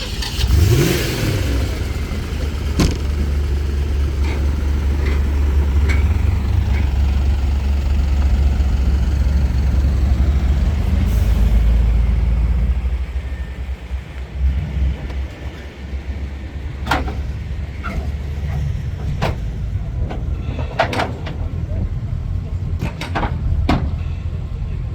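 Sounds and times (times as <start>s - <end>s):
car engine rumbling: 0.0s - 24.9s
short sharp knocks: 2.8s - 3.2s.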